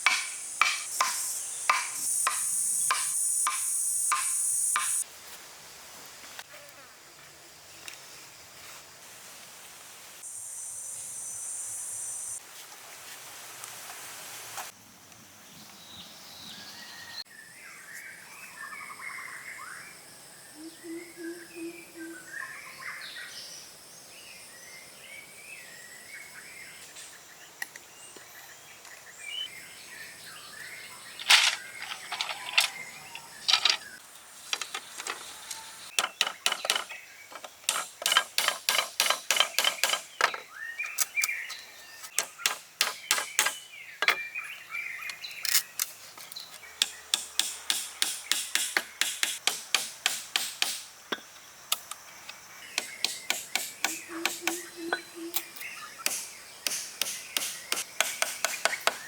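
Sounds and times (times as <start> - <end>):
birds chirping: 28.0 - 49.3, 52.5 - 59.0.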